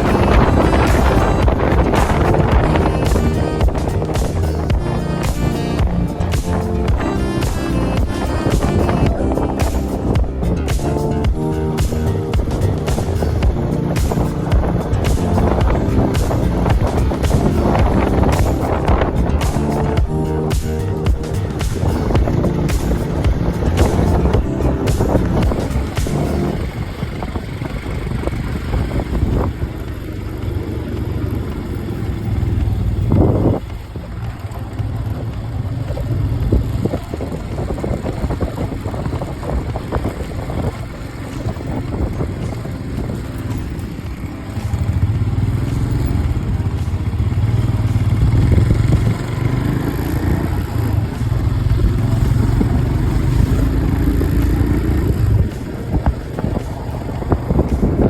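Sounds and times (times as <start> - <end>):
rushing air: 0.0 - 30.0, 36.4 - 58.0
motorcycle engine running: 0.0 - 58.0.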